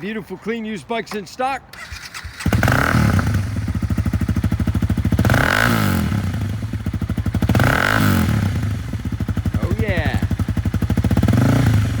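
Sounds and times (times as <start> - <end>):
motorcycle engine idling: 1.8 - 12.0.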